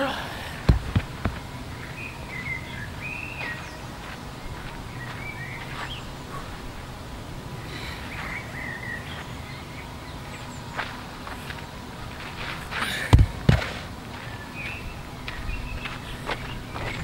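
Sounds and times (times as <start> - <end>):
low background noise: 0.0 - 17.0
songbird whistled chirps: 1.7 - 3.8.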